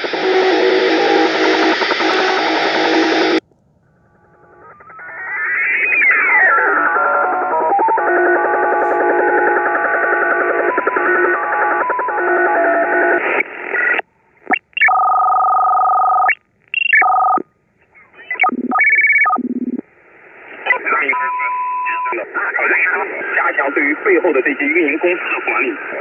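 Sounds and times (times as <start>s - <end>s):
radio hiss: 0.0s - 3.4s, 4.7s - 15.0s, 18.2s - 26.0s
short steady radio tones: 4.3s - 17.4s, 18.2s - 26.0s
multi-tone digital data signal: 14.5s - 17.4s, 18.3s - 19.8s.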